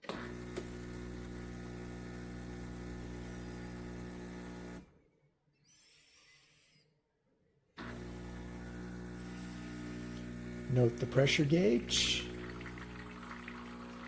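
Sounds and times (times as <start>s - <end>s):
espresso machine pump humming: 0.1s - 4.8s, 7.8s - 14.0s.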